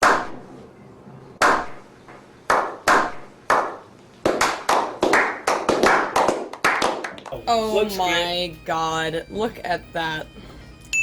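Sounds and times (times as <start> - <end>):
hand clapping: 2.5 - 7.4.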